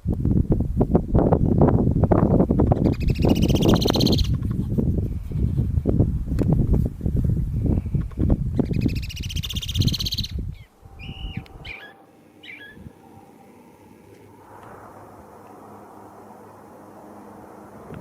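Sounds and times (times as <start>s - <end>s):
rough low rumble: 0.0s - 18.0s
birds calling: 2.6s - 4.6s, 7.8s - 14.4s.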